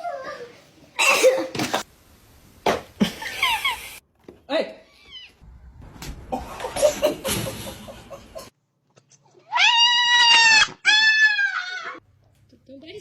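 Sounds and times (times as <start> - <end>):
cat yowling: 9.5 - 12.0.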